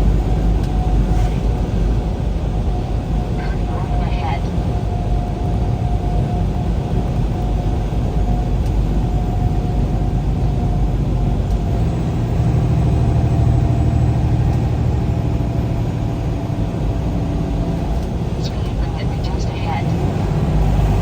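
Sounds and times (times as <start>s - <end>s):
engine and road rumble: 0.0s - 21.0s
faint steady whine: 2.9s - 5.1s, 18.0s - 21.0s.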